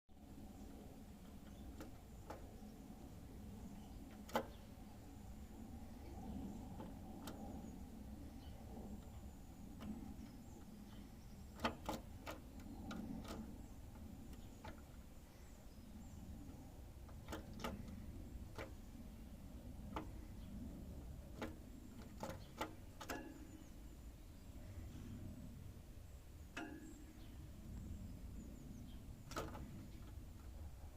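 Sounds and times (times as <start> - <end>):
low steady hum: 0.1 - 30.9
sharp clicks and taps in cage: 1.2 - 2.7, 3.8 - 5.4, 6.0 - 15.1, 16.4 - 23.5, 26.5 - 27.9, 29.2 - 30.7.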